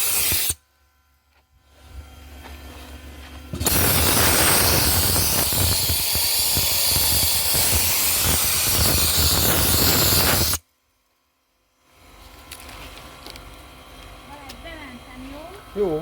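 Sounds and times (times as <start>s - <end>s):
dry ice blaster firing: 0.0s - 0.6s, 3.5s - 10.6s.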